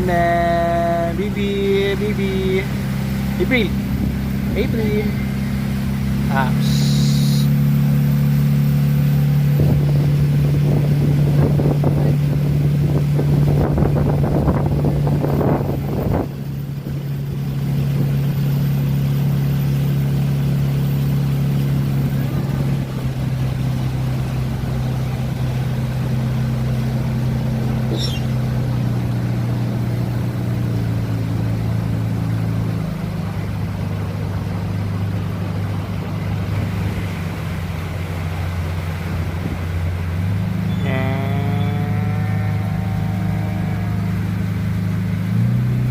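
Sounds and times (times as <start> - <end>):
motorboat engine running: 0.0 - 45.9
wind and water rushing: 0.0 - 45.9.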